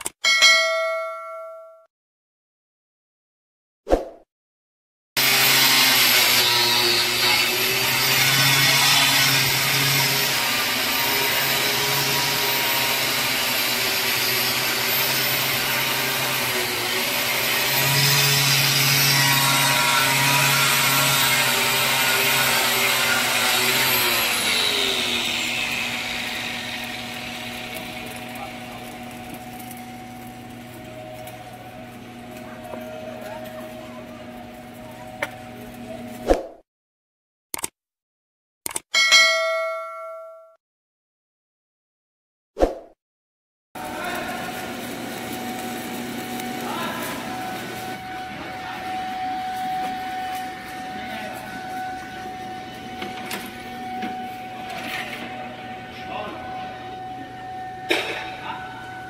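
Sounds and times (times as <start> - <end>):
angle grinder whining on steel: 5.2 - 36.2, 43.8 - 59.0.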